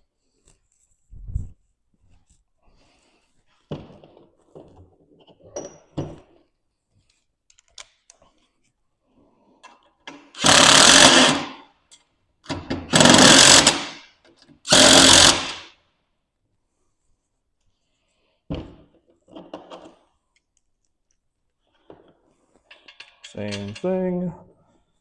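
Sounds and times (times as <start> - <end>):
power driver running bolts: 10.4 - 11.5, 12.9 - 14.0, 14.7 - 15.6.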